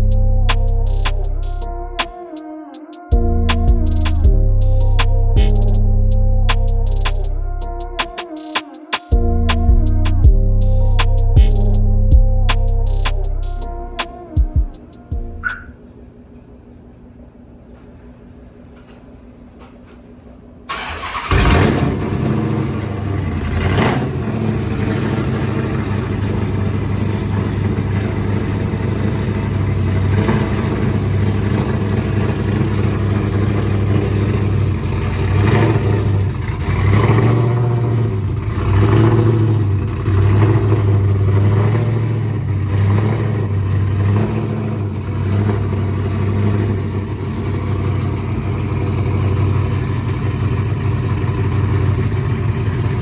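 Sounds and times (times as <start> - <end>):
car engine revving: 20.7 - 53.0.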